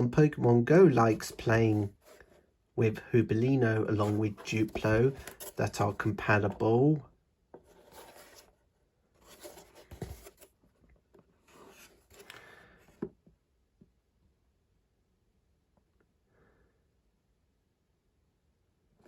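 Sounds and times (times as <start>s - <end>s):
soft scraping handling noise: 0.8s - 13.3s.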